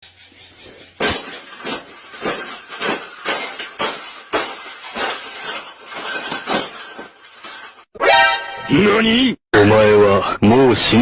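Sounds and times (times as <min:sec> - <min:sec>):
sharp knocks or clanks: 0:00.4 - 0:07.8.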